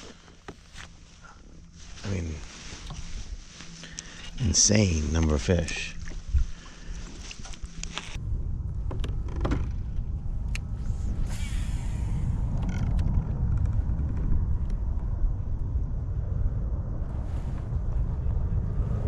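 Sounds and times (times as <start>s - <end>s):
wind buffeting microphone: 8.2s - 19.0s.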